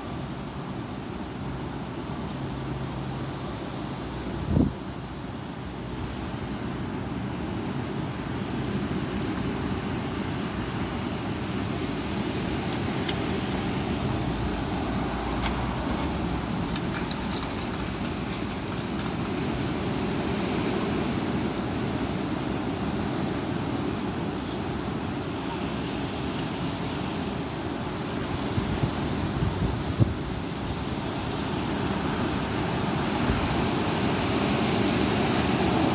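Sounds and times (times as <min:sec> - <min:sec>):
wind buffeting microphone: 0:27.8 - 0:35.9.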